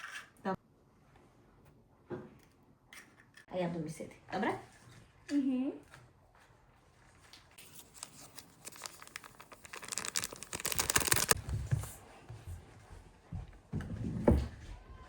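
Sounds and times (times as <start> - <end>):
packaging crinkling and rustling: 7.4 - 11.6.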